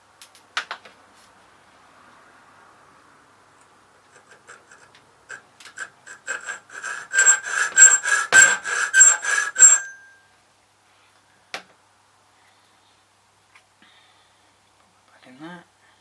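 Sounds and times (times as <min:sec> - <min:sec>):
file rasping on metal key: 0:04.1 - 0:10.0
brief metallic ring: 0:08.4 - 0:10.4.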